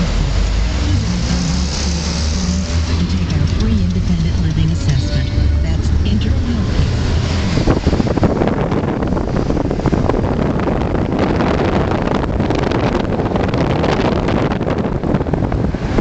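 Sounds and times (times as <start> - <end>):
wind and road noise in car: 0.0 - 16.0
wind buffeting microphone: 5.9 - 16.0.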